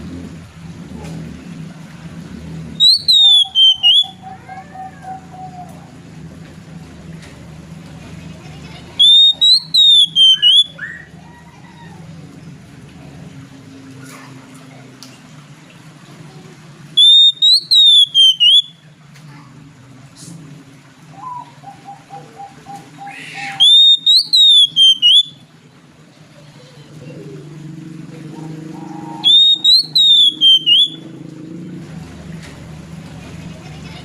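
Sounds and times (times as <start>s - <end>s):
soft repeated bird notes: 2.7s - 4.5s, 9.0s - 11.1s, 16.9s - 19.0s, 21.1s - 25.7s, 28.2s - 31.2s
bird singing whistled phrase: 2.8s - 4.2s, 9.0s - 11.1s, 17.0s - 18.8s, 23.0s - 25.4s, 28.9s - 31.1s.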